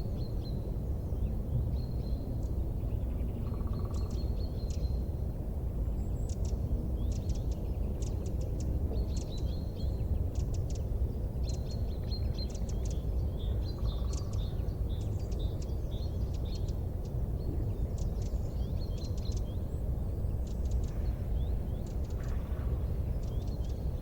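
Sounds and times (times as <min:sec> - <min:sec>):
small birds chirping: 0:06.0 - 0:24.0.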